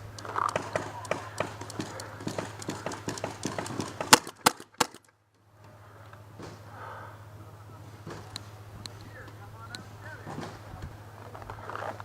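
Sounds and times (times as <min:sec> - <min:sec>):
paintball markers firing: 0:00.1 - 0:05.1.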